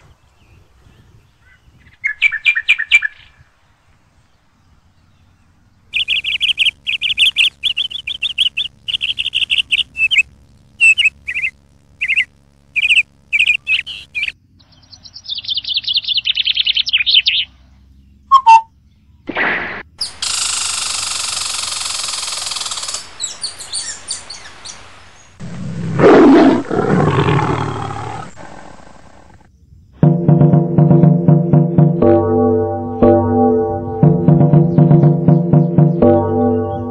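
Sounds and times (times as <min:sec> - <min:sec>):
bird chirping: 0:04.2 - 0:19.3.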